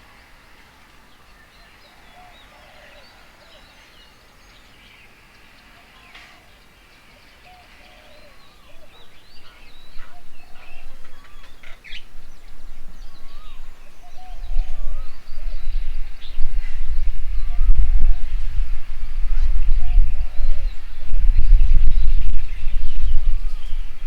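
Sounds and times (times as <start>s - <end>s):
birds chirping: 0.0s - 24.0s
low rumble: 12.2s - 24.0s.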